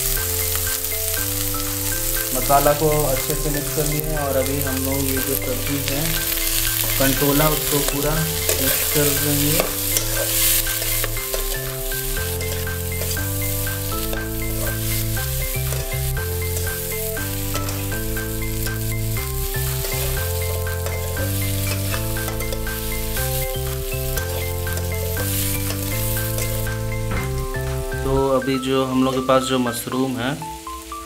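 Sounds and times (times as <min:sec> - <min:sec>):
vegetables sizzling in oil: 0:00.0 - 0:28.1, 0:29.8 - 0:31.0
background music with bass line: 0:00.0 - 0:31.0
metal spatula scraping pan: 0:04.7 - 0:13.2.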